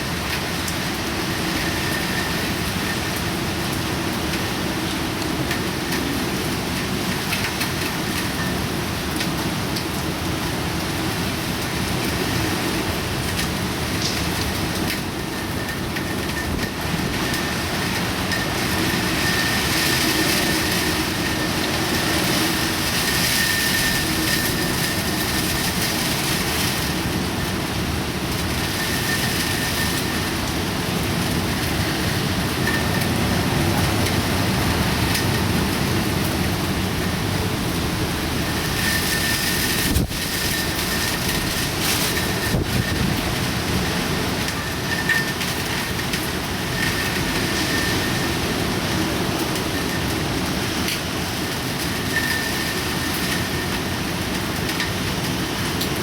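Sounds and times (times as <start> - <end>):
rain and wind rushing: 0.0 - 56.0.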